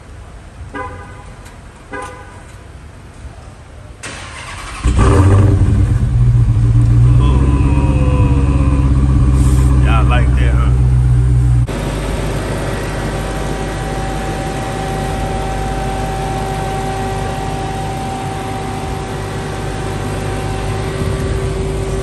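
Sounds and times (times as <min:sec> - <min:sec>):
car engine idling: 0:04.1 - 0:22.0
supercharger whine: 0:04.6 - 0:22.0.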